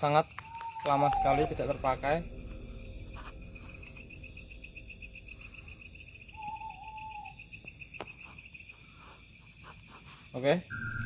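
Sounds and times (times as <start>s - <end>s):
crickets chirring: 0.0s - 11.0s
wavering whistle-like call: 0.4s - 4.0s, 6.2s - 7.4s, 10.7s - 11.0s.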